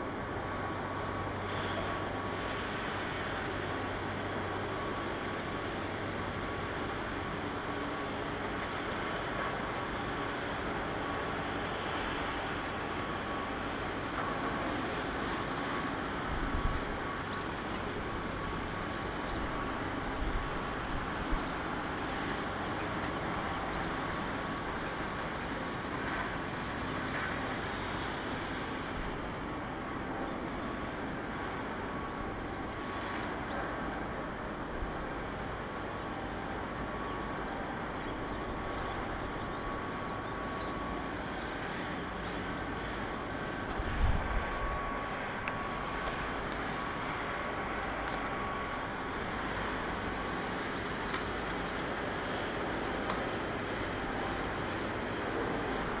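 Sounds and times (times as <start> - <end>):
faint whine: 0.0 - 56.0
mechanical background noise: 0.0 - 56.0.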